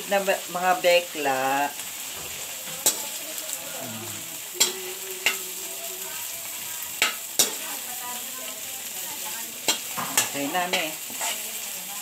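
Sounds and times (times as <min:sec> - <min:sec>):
shrimp sizzling in a pan: 0:00.0 - 0:12.0
utensil clicking against pan: 0:07.0 - 0:07.8, 0:09.6 - 0:11.4.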